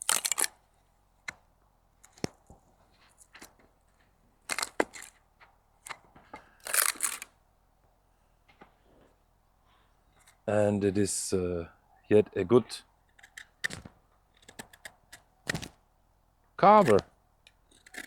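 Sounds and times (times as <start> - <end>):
knife cutting into wood: 13.2 - 15.8, 16.8 - 17.1.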